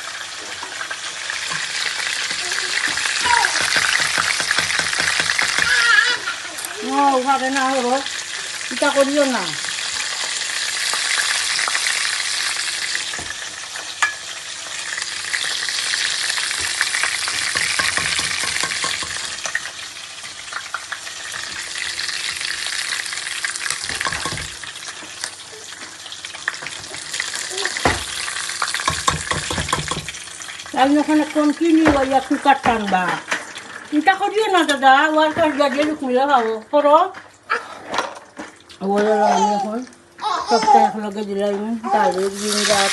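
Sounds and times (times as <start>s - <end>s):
chicken sizzling in hot oil: 0.0s - 35.2s, 42.0s - 42.9s
utensil knocking against pan: 3.5s - 5.9s, 17.3s - 19.3s, 23.8s - 24.6s, 28.8s - 30.2s.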